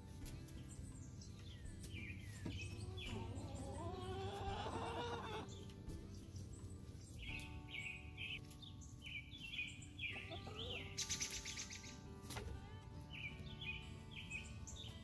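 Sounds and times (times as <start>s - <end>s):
small birds chirping: 0.0s - 15.0s
hen calling: 2.2s - 5.8s, 7.2s - 12.1s.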